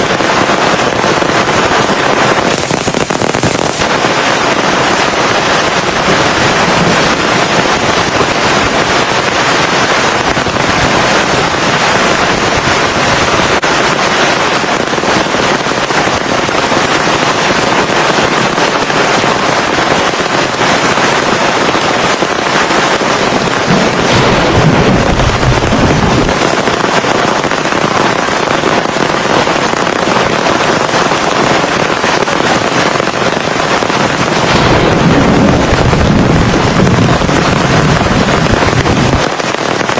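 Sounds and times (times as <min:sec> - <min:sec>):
heavy rain pouring: 0:00.0 - 0:39.9
low rumble: 0:23.7 - 0:26.6.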